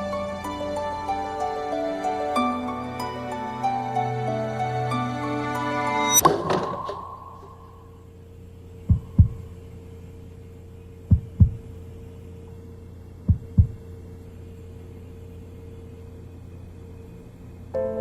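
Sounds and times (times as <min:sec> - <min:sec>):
low steady hum: 0:00.0 - 0:18.0
heartbeat thumps: 0:08.9 - 0:09.5, 0:11.1 - 0:11.7, 0:13.3 - 0:13.8.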